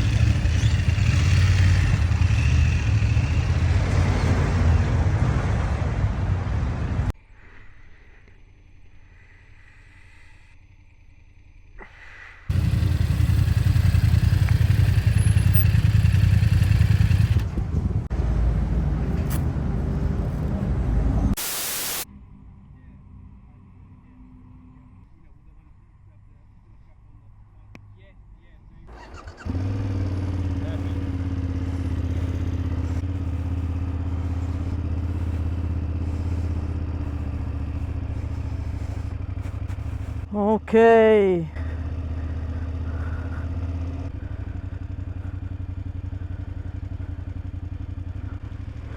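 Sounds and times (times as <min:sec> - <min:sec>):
motorcycle engine running: 0:00.0 - 0:07.1, 0:12.5 - 0:20.9, 0:28.9 - 0:48.9
wind noise: 0:17.4 - 0:18.2
short burst of hiss: 0:21.4 - 0:22.1.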